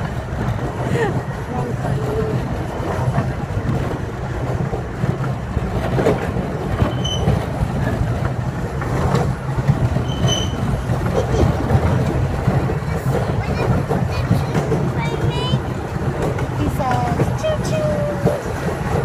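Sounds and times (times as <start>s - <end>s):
miniature train rumbling: 0.0s - 19.0s
wheels clattering on rail: 0.0s - 19.0s
short high squeaks: 6.9s - 7.3s, 10.0s - 10.7s.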